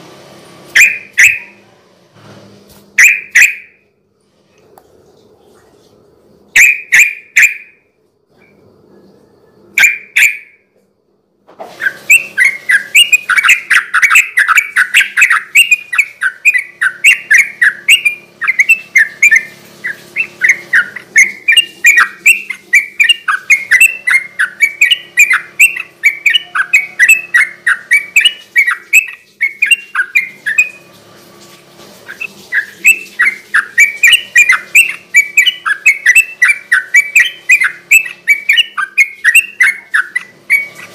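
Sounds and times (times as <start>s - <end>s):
bird singing chattering notes: 0.8s - 1.5s, 3.0s - 3.7s, 6.6s - 7.7s, 9.8s - 10.6s, 11.8s - 30.8s, 32.1s - 40.9s.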